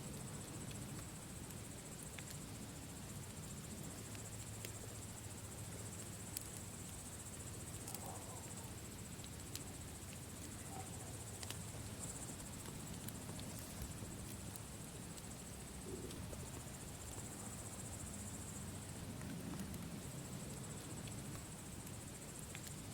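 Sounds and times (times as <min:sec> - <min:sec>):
campfire crackling: 0:00.0 - 0:22.9
insect trilling: 0:06.4 - 0:19.0.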